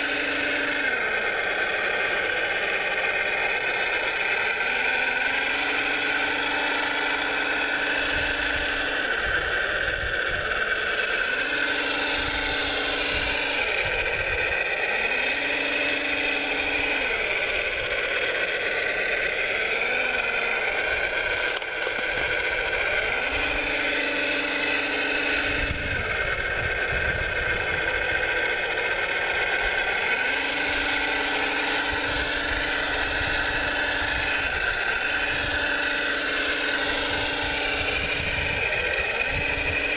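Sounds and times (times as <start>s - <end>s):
high electric whine: 0.0s - 39.9s
lower motor tone: 0.0s - 39.9s.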